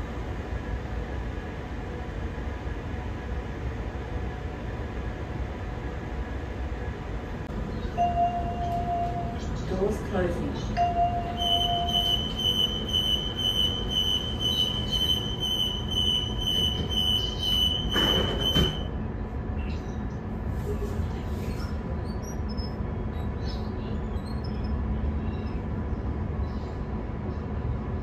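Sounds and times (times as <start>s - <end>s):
train rumbling on rails: 0.0s - 28.0s
steady high-pitched tone: 7.9s - 9.5s, 10.7s - 18.8s.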